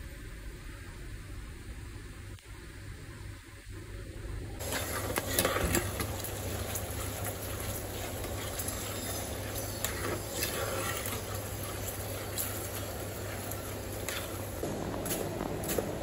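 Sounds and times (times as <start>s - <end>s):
food sizzling in hot oil: 4.6s - 16.0s
metal spoon stirring in pot: 4.6s - 16.0s.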